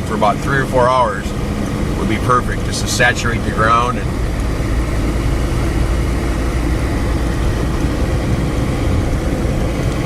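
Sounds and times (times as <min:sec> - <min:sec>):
vehicle engine and road noise: 0:00.0 - 0:10.0.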